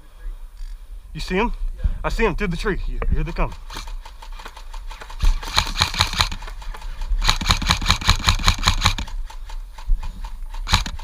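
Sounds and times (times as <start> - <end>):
airsoft rifle firing bursts: 3.4 - 11.0.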